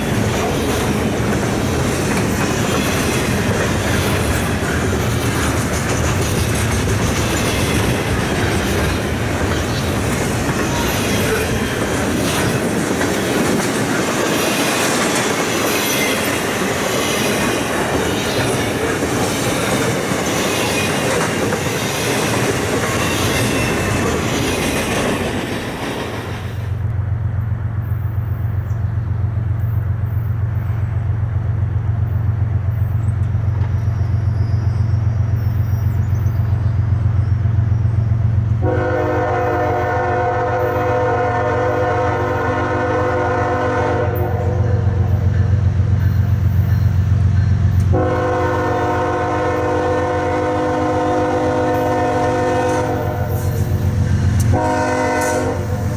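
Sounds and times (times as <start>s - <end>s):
diesel locomotive engine rumbling: 0.0s - 55.9s
train wheels on rails: 0.0s - 55.9s
locomotive air horn blasts: 38.6s - 44.8s, 47.9s - 53.6s, 54.4s - 55.9s.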